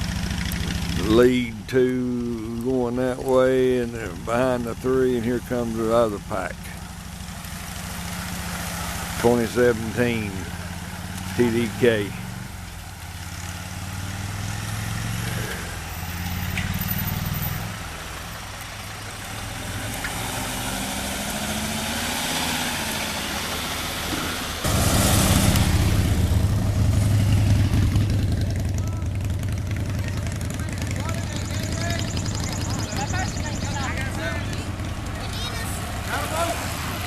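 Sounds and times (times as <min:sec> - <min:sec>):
vehicle engine idling: 0:00.0 - 0:37.0.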